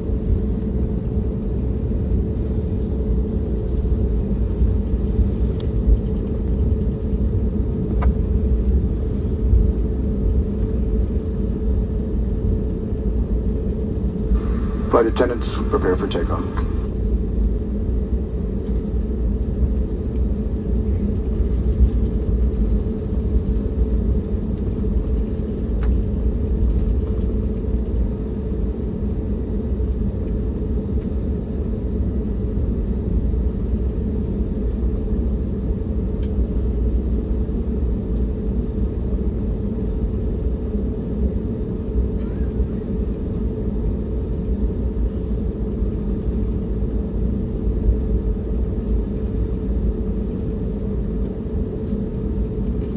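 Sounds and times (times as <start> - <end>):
airliner cabin engine rumble: 0.0 - 52.9
steady hum: 0.0 - 52.9.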